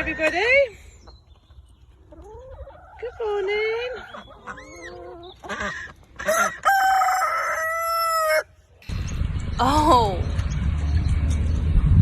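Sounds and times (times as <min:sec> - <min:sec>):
parrot imitating rooster crowing: 0:06.3 - 0:08.5.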